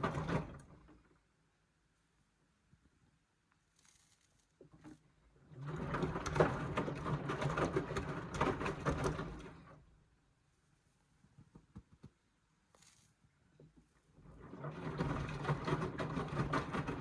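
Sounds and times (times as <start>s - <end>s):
washing machine motor hum: 14.2s - 17.0s.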